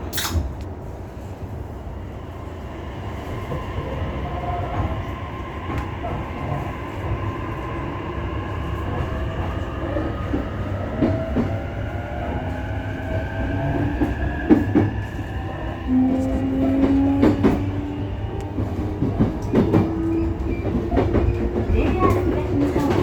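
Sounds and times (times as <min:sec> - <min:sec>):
train wheels rumbling on rails: 0:00.0 - 0:23.0
train motor whine: 0:13.7 - 0:23.0.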